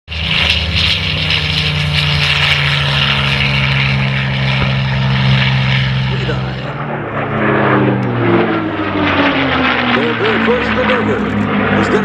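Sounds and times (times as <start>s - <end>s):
propeller plane engine droning: 0.1s - 12.0s.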